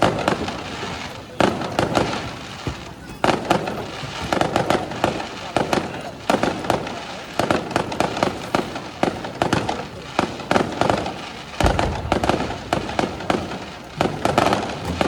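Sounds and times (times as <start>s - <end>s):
fireworks cracks and pops: 0.0s - 15.0s
heavy low firework boom: 11.6s - 15.0s.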